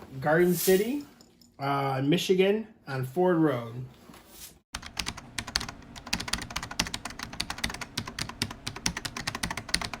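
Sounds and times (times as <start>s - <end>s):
fast typing on keyboard: 4.8s - 10.0s.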